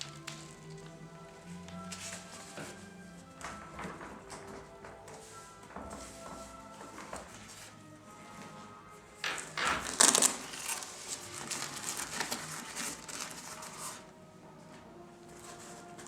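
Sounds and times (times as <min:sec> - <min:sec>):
fabric bag rustling and crinkling: 0:09.8 - 0:16.0.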